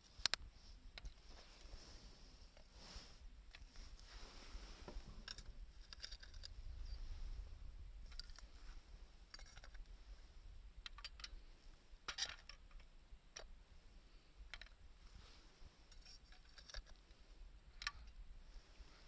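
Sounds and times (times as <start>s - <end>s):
sharp clicks and crackles: 0.0s - 1.2s.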